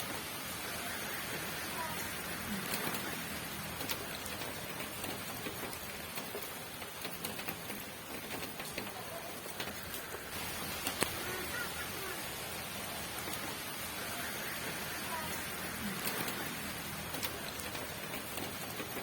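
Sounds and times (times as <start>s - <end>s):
raindrops tapping: 0.0s - 19.0s
steady rain hissing: 0.0s - 19.0s.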